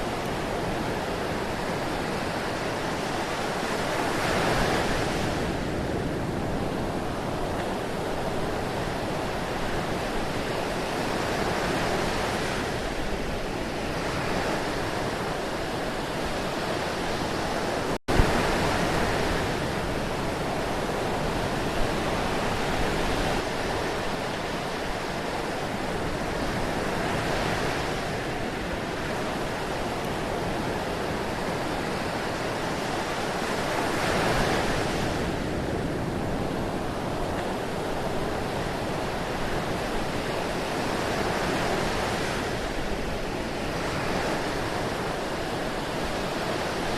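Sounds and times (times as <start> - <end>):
ocean surf washing in: 0.0 - 46.9.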